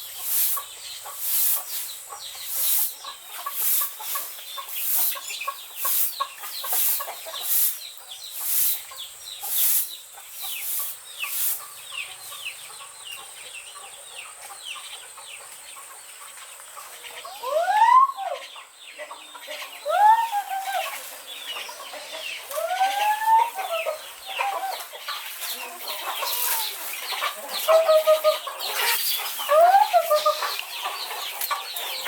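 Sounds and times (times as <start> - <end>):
chickens peeping: 0.0 - 32.0.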